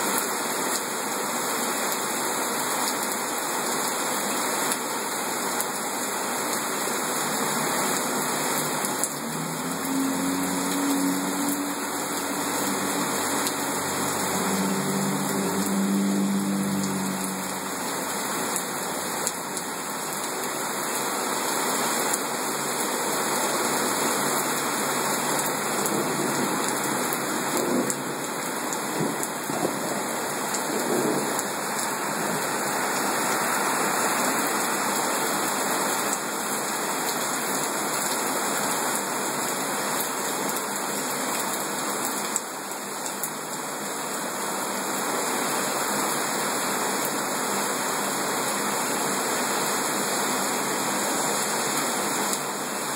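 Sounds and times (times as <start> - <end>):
heavy rain pouring: 0.0 - 52.9.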